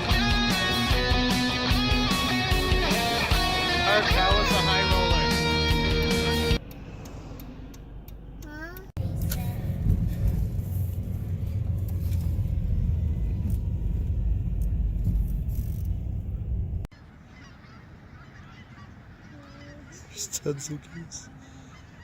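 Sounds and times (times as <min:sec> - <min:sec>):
geese honking faintly: 0:16.9 - 0:22.0.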